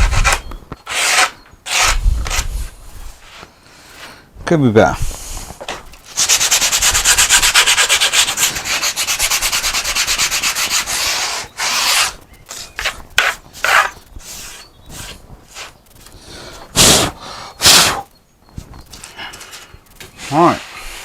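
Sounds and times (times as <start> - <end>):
hand sanding a wooden board: 0.0 - 2.6, 6.1 - 15.8.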